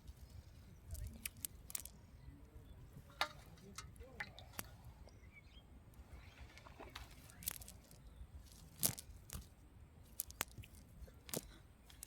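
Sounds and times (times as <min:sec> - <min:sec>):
sharp crunching clicks: 0:00.9 - 0:02.0, 0:07.0 - 0:09.5, 0:10.1 - 0:12.0.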